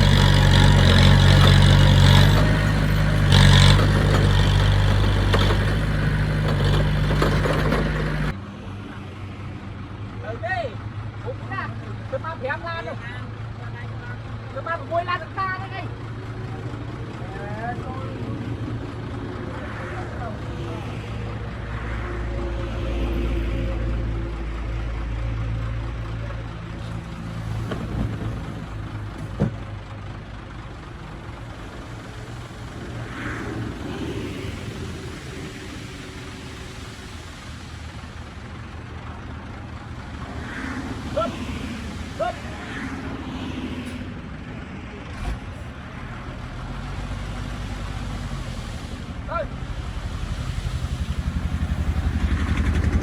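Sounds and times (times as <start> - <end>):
diesel engine of earthmover running: 0.0 - 10.2, 23.7 - 53.0
thump: 29.2 - 29.6.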